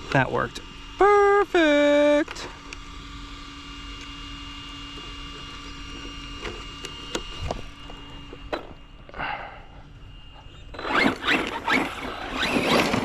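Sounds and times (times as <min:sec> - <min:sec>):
faint electric whine: 0:00.0 - 0:13.0.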